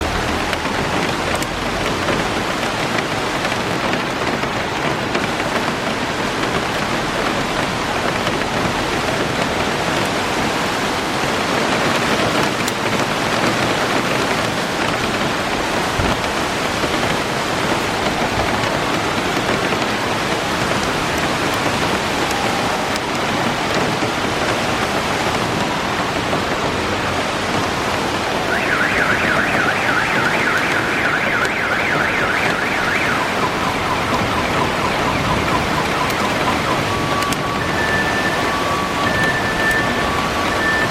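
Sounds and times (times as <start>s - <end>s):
heavy rain pouring: 0.0s - 40.9s
car alarm warbling: 28.4s - 40.9s.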